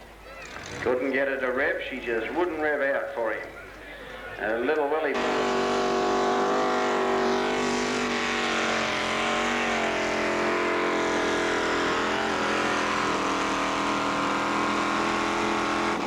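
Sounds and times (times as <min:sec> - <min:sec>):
tractor engine under load: 0:05.2 - 0:16.0.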